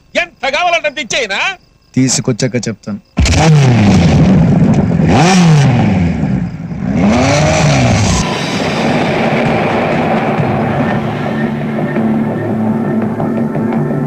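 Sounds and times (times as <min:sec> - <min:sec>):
engine revving: 0:03.2 - 0:13.4
background music: 0:08.2 - 0:14.0.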